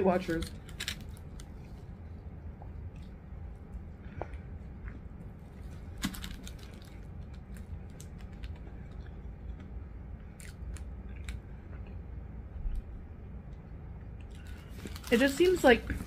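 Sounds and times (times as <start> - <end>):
steady low hum: 0.0 - 16.0
person chewing food: 0.6 - 12.8.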